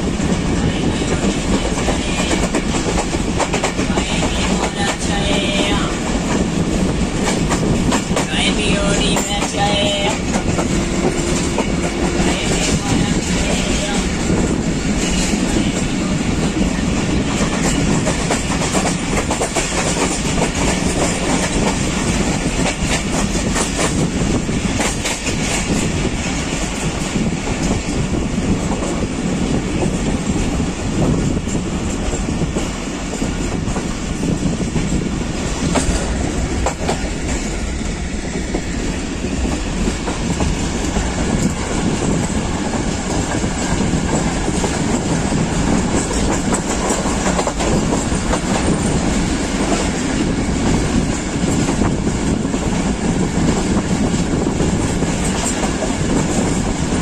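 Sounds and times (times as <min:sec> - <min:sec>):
train rumble: 0:00.0 - 0:57.0
wheels clacking over rail joints: 0:31.3 - 0:57.0.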